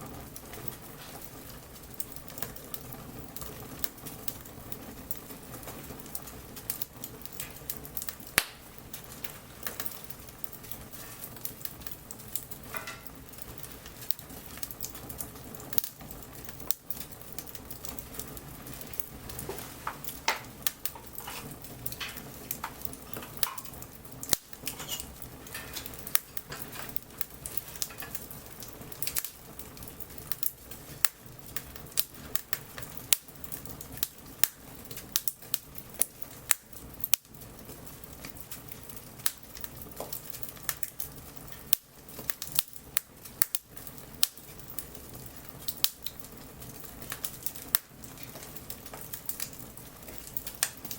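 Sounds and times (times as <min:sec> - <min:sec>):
bonfire crackling: 0:00.0 - 0:50.9
low rush of flames: 0:00.0 - 0:50.9
sharp pops of burning wood: 0:00.0 - 0:50.9.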